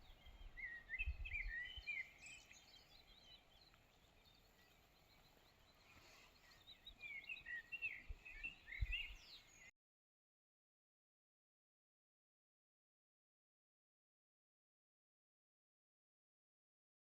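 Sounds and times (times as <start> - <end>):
small birds chirping: 0.0 - 9.7.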